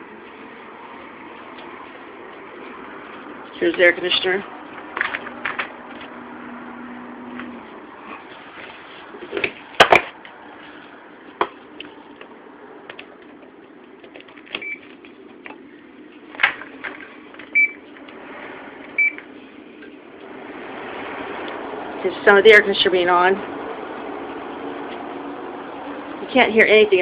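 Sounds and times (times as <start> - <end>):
air conditioner humming: 0.0 - 27.0.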